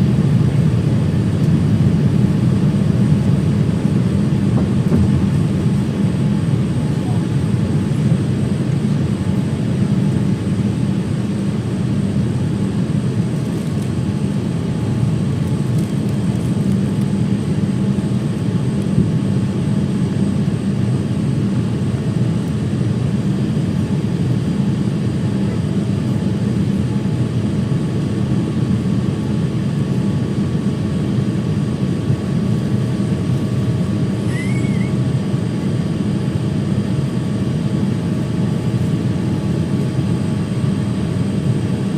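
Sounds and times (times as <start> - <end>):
airliner cabin rumble: 0.0 - 41.9.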